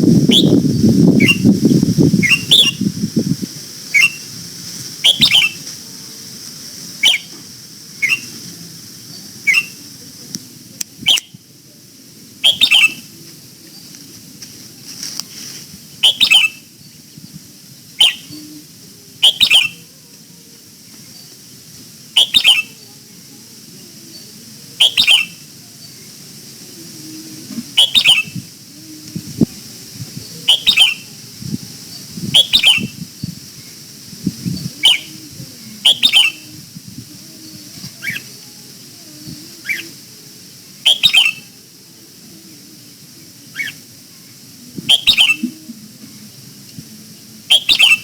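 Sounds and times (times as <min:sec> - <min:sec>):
bird giving short sharp calls: 0:02.2 - 0:02.8, 0:04.0 - 0:04.2, 0:05.0 - 0:05.6, 0:07.0 - 0:07.3, 0:08.0 - 0:08.3, 0:09.5 - 0:09.8, 0:12.4 - 0:13.1, 0:30.5 - 0:31.0, 0:32.4 - 0:32.9, 0:35.8 - 0:36.5, 0:40.8 - 0:41.5, 0:44.9 - 0:45.6.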